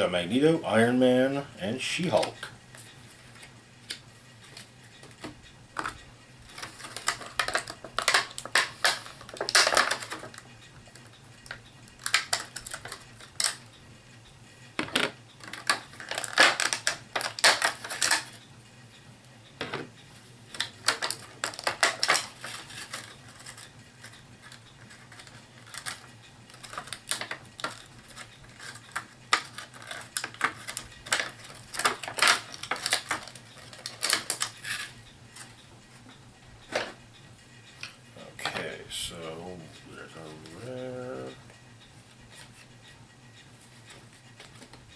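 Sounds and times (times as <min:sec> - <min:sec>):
plastic clicks and rattles: 0:04.6 - 0:10.5, 0:14.8 - 0:18.3, 0:20.6 - 0:23.7, 0:24.4 - 0:34.9.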